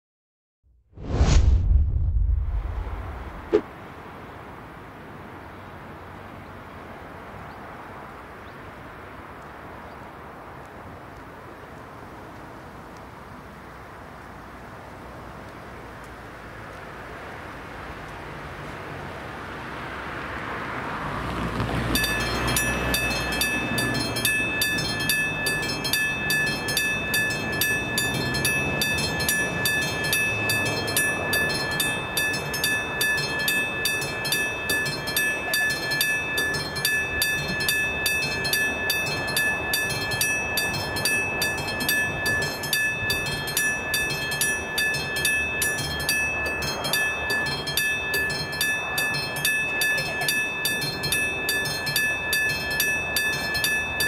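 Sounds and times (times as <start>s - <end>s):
low rumble: 1.0s - 3.6s
level crossing warning bell: 21.8s - 54.0s.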